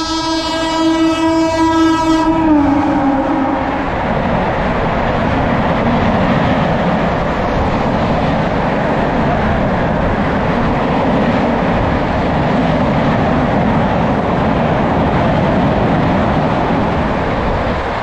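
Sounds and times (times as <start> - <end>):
train horn long blast: 0.0 - 4.0
train coaches rushing and rattling: 0.0 - 18.0.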